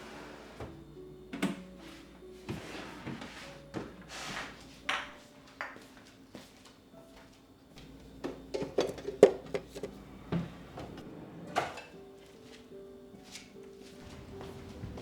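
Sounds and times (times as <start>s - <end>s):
household objects clicking and knocking: 8.0s - 10.0s.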